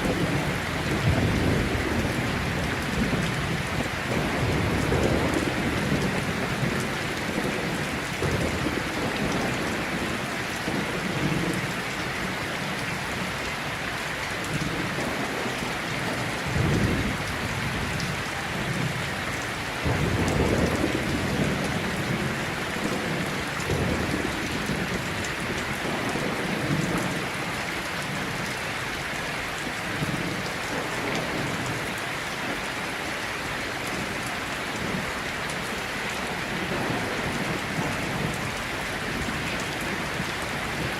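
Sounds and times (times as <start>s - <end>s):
thunder rumbling: 0.0s - 13.4s, 14.6s - 28.5s
heavy rain falling: 0.0s - 40.9s.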